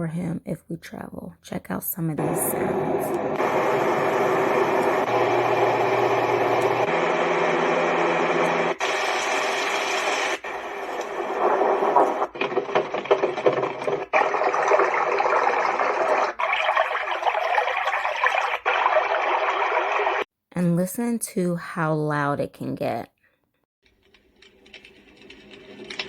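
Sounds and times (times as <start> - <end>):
sleep machine noise sounds: 2.2 - 13.6.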